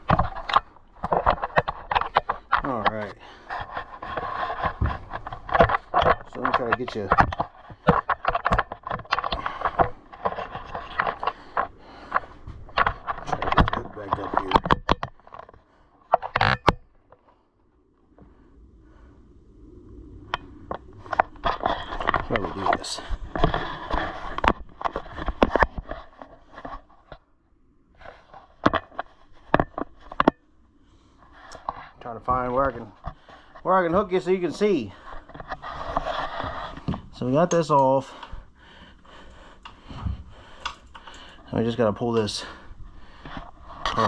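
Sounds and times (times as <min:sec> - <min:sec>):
camera handling rustling: 0:00.0 - 0:02.6
phone handling clicks and scrapes: 0:00.0 - 0:17.3, 0:20.6 - 0:27.2, 0:28.0 - 0:30.4, 0:34.5 - 0:38.3.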